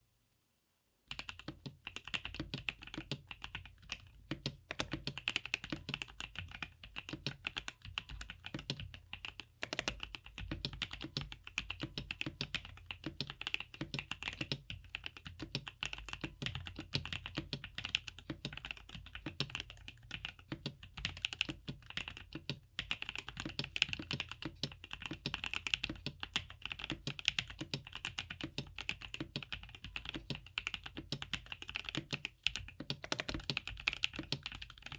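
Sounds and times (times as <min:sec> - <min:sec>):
fast mechanical keyboard typing: 0:01.1 - 0:34.9.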